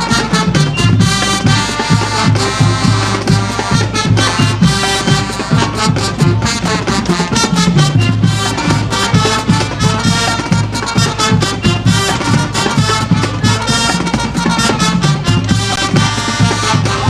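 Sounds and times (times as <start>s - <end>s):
brass: 0.0s - 17.0s
drumline beat: 0.0s - 17.0s.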